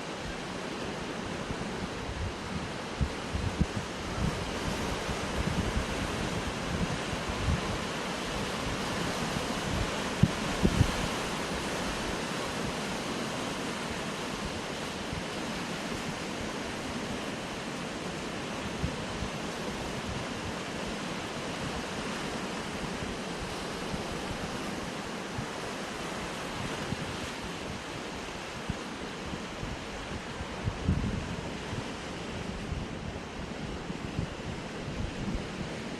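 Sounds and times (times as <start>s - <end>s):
wind buffeting microphone: 1.7s - 7.8s, 8.6s - 12.1s, 28.6s - 35.9s.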